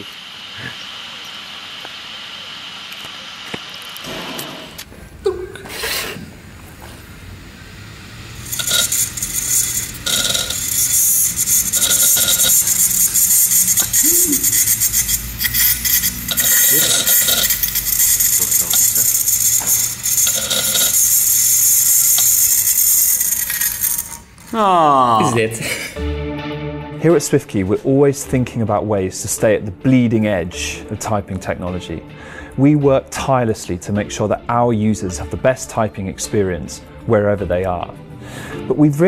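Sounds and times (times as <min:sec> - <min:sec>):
hard drive humming: 0:00.0 - 0:22.9
tool scratching hard drive platter: 0:08.5 - 0:23.6.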